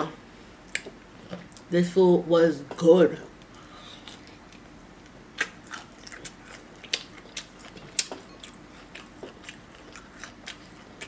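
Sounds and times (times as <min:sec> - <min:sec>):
wet chewing clicks: 0:05.4 - 0:11.0.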